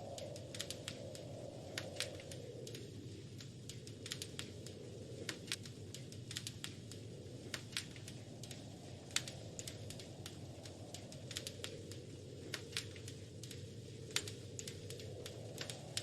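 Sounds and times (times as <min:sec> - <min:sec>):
low rumble of burning logs: 0:00.0 - 0:16.0
wood fire crackling: 0:00.0 - 0:16.0.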